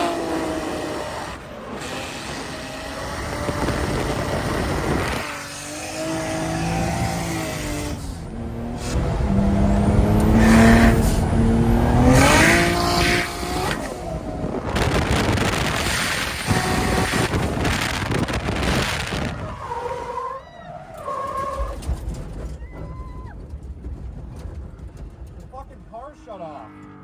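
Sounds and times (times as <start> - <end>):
car engines revving: 0.0 - 22.6
tyre squeal: 18.6 - 23.5.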